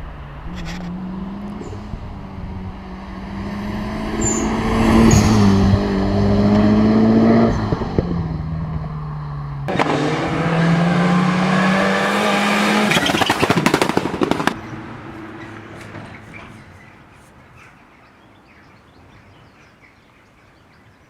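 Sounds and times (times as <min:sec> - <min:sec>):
turbocharged engine running hard: 0:09.7 - 0:17.0
crackling exhaust pops: 0:12.1 - 0:17.4.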